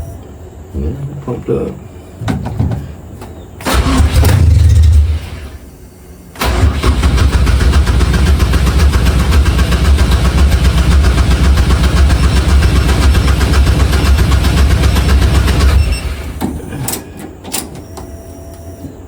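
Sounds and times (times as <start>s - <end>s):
car engine cranking on starter: 3.6s - 5.7s, 6.4s - 16.6s.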